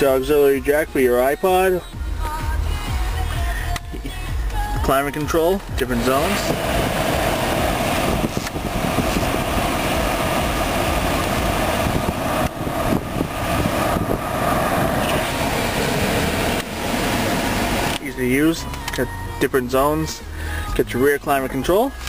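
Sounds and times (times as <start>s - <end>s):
blower pushing air through vents: 2.1s - 19.2s.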